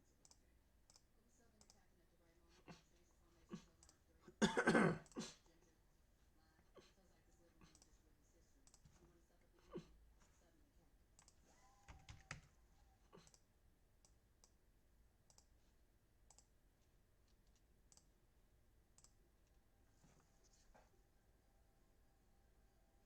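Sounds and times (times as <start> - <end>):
faint clicks: 0.2 - 1.8, 16.3 - 16.5, 19.0 - 19.6.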